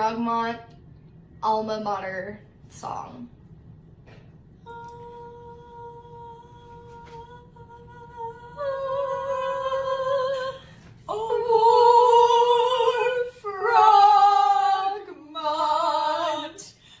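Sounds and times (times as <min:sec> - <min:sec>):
woman singing a cappella: 0:04.6 - 0:17.0.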